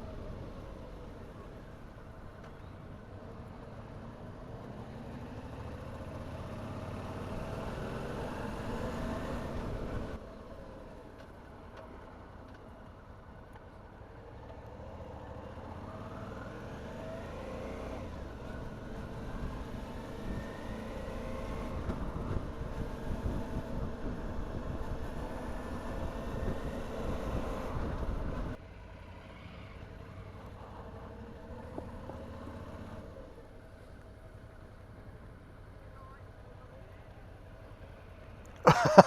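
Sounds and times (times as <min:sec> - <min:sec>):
motorcycle engine revving: 0:03.7 - 0:10.2
wind rumble on microphone: 0:21.7 - 0:28.6.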